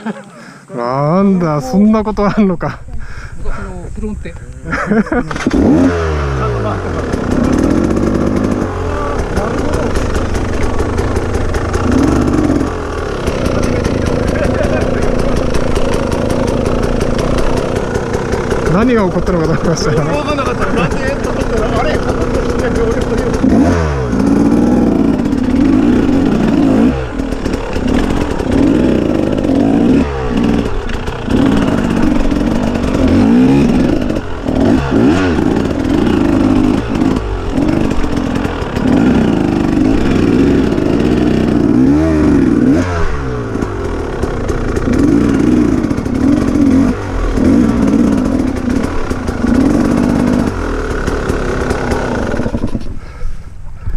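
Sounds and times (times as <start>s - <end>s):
motorcycle engine revving: 0.0s - 53.2s
clatter: 6.6s - 53.0s.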